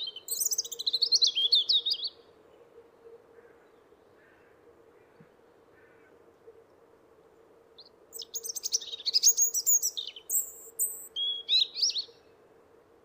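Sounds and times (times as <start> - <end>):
small songbird singing: 0.0 - 2.2, 7.8 - 12.2.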